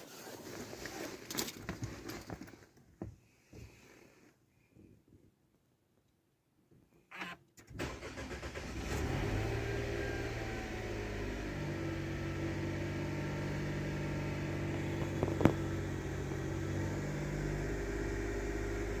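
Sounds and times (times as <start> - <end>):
car starter cranking: 7.2 - 10.5
car engine idling: 10.2 - 19.0.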